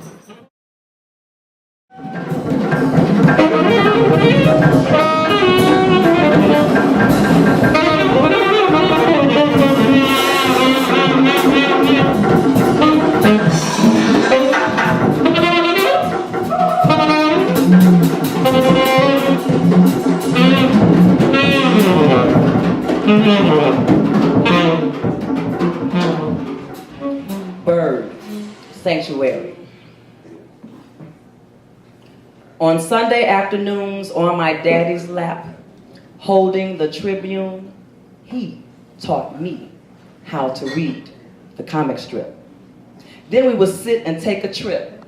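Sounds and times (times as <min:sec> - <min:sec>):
drums and cymbals: 0:01.9 - 0:29.0
saxophone melody: 0:02.0 - 0:27.7.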